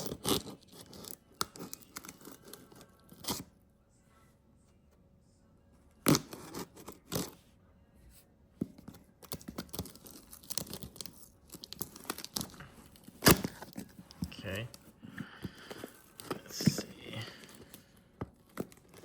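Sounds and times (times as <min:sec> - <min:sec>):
packaging crinkling and crackling: 0:09.2 - 0:19.0.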